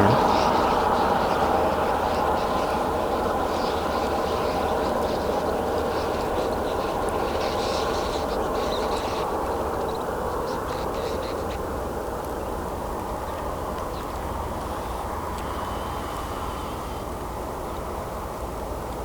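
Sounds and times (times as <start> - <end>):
car passing on road: 14.2 - 18.8.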